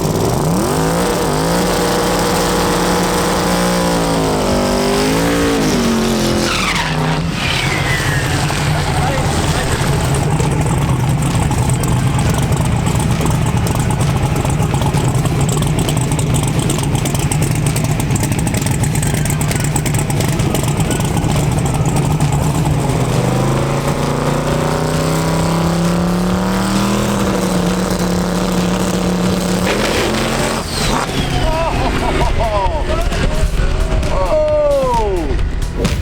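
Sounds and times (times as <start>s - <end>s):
racing car engine revving: 0.0s - 36.0s.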